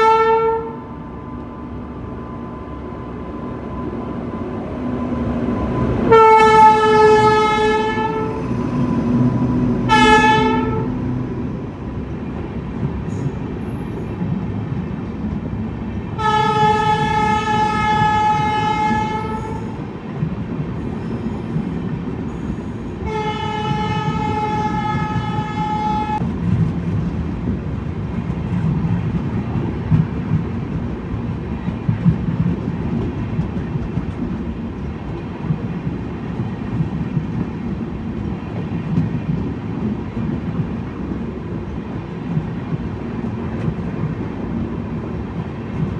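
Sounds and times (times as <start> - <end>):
train horn blasts: 0.0 - 0.9, 6.0 - 8.4, 9.8 - 11.0, 16.2 - 19.8, 22.4 - 26.2
train rumble and wheel noise: 0.0 - 45.9.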